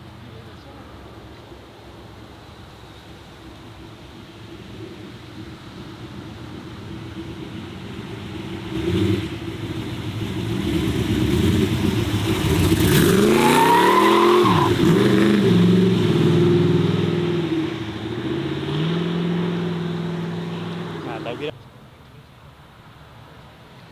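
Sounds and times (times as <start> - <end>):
car engine accelerating past: 4.8 - 21.5.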